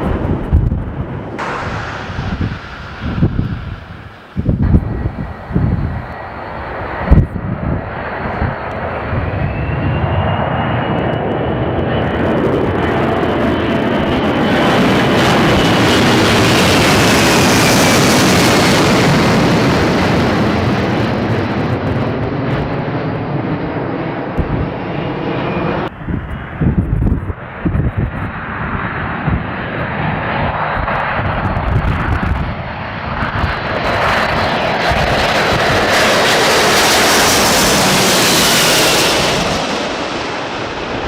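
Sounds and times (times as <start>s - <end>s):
uneven low jet rumble: 0.0s - 32.6s
jet airliner passing with whine: 0.0s - 41.0s.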